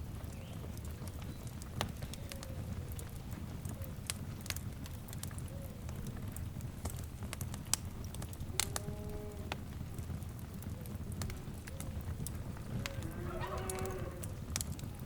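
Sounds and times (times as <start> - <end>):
low rumble of flames: 0.0 - 15.0
wood fire crackling and popping: 0.0 - 15.0
faint drawn-out animal call: 12.8 - 14.3.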